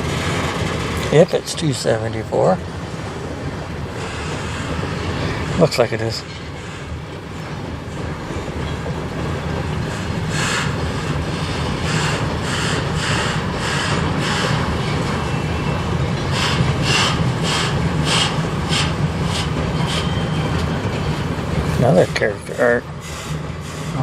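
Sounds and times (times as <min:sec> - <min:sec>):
train cars rumbling past: 0:00.0 - 0:24.0
wheels clacking on rail joints: 0:00.0 - 0:24.0.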